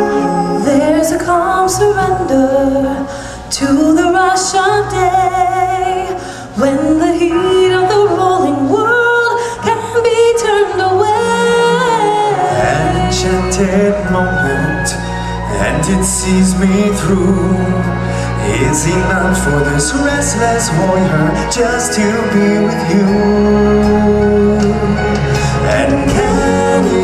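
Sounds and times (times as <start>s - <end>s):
person singing with vibrato: 0.0s - 27.0s
sustained accompaniment chords: 0.0s - 27.0s.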